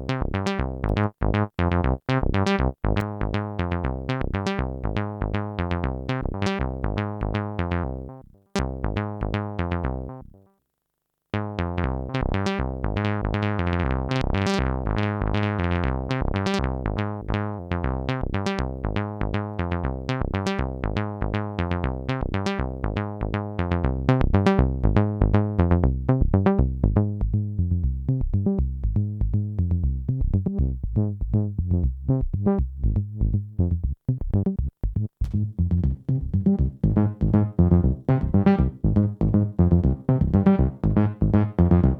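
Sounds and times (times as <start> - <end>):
synthesizer sequence of short notes: 35.3 - 41.9.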